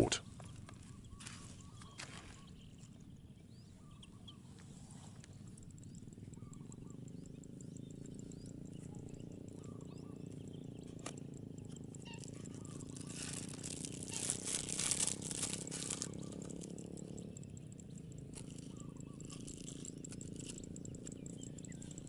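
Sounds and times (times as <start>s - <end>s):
birds chirping: 0.0s - 22.0s
steady low drone: 7.8s - 22.0s
dense crackling rattle: 11.2s - 22.0s.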